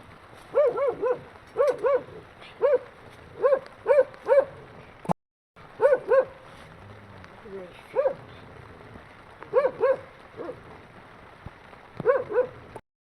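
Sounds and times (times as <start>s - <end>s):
dog barking: 0.5s - 4.7s, 5.8s - 6.7s, 7.9s - 8.4s, 9.5s - 10.7s, 12.0s - 12.6s.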